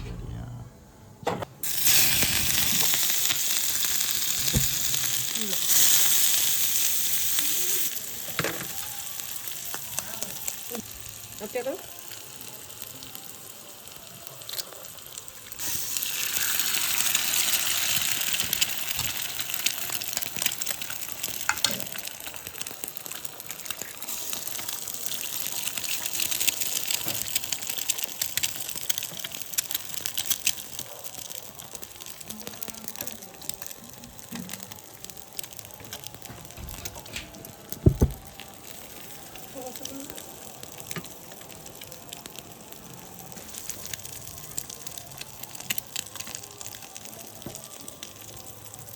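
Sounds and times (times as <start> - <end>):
egg sizzling in a pan: 1.6 - 48.9
knock: 37.9 - 38.2.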